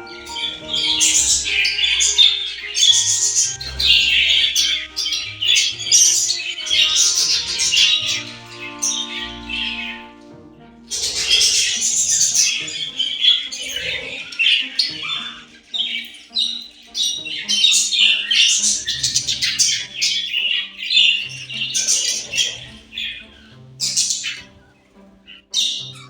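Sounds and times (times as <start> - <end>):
budgerigar chattering and warbling: 0.0 - 10.2, 10.9 - 26.0
faint background music: 0.0 - 26.0.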